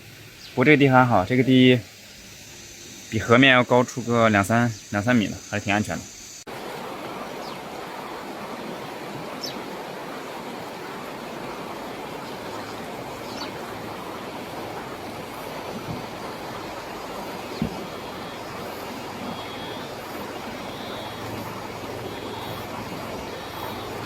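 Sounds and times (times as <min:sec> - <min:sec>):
river water rushing: 0:06.5 - 0:24.0.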